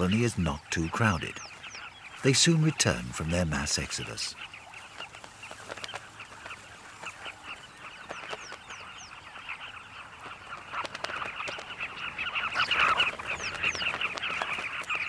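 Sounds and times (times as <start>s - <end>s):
bee-eaters calling: 0.0s - 15.0s.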